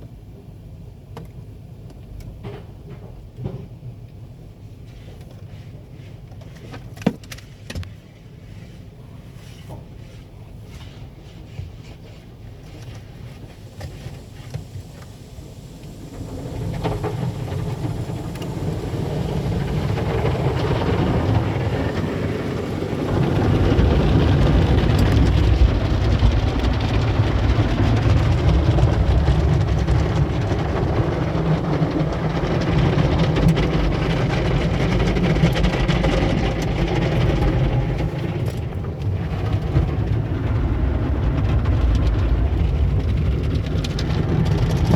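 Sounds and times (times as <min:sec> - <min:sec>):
water spray from car wash: 0:08.3 - 0:44.9
low rumble: 0:14.9 - 0:44.9.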